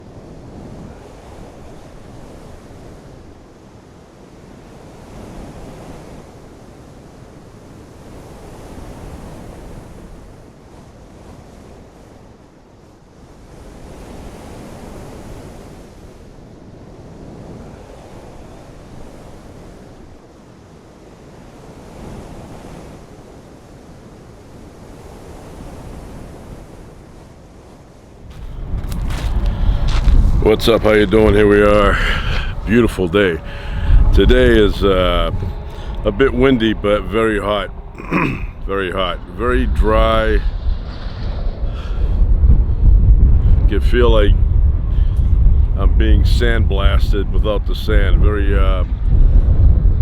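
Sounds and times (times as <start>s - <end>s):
gusty wind on microphone: 0.0s - 50.0s.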